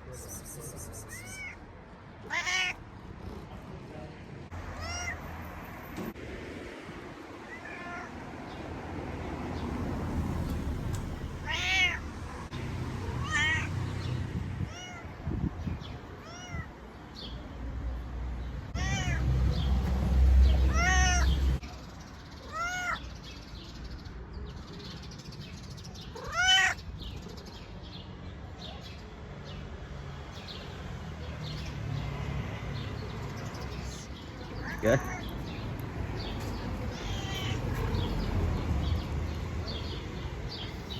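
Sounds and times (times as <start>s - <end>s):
cat meowing: 1.0s - 1.6s, 2.2s - 2.8s, 4.7s - 5.3s, 7.5s - 8.1s, 11.4s - 12.0s, 13.2s - 13.7s, 14.6s - 15.2s, 16.2s - 16.8s, 18.8s - 19.2s, 20.6s - 21.4s, 22.4s - 23.0s, 26.1s - 26.8s, 34.4s - 35.6s, 36.2s - 38.4s.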